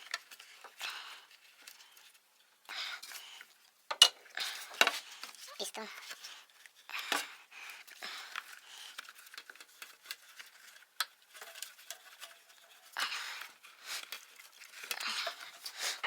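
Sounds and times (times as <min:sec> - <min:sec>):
rustling: 0:04.3 - 0:16.0.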